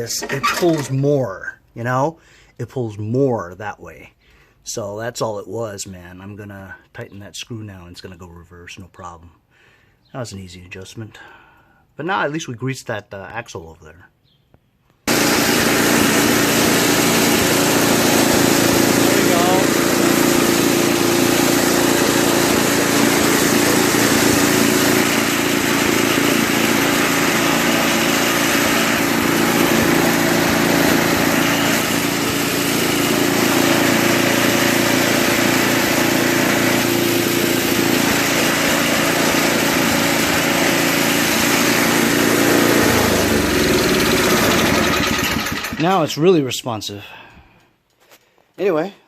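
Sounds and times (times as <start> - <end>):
snowblower engine running: 0.0 - 1.2, 15.1 - 46.0.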